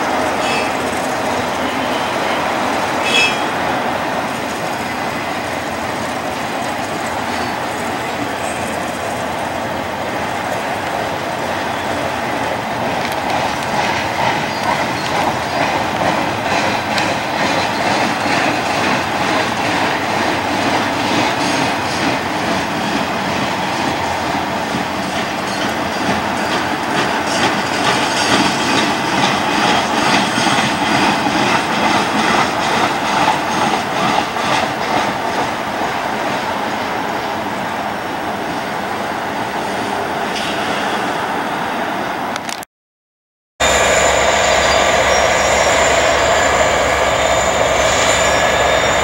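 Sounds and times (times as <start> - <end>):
train rumbling past: 0.0 - 42.4, 43.6 - 49.0
wheels clickety-clack: 4.2 - 36.9.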